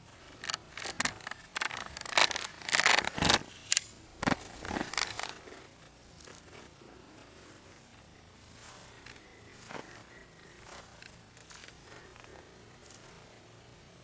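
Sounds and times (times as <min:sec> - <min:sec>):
faint high whine: 0:00.0 - 0:14.0
sharp scrapes and snaps: 0:00.4 - 0:05.4.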